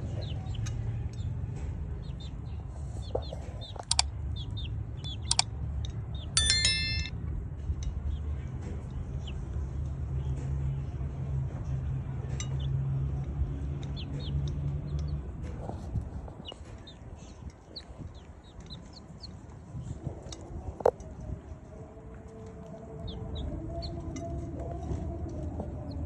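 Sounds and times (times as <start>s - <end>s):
chickens chirping: 2.0s - 5.4s, 13.9s - 20.9s, 22.7s - 26.0s
sharp click: 3.6s - 4.1s, 5.2s - 5.5s
low steady hum: 4.8s - 8.0s.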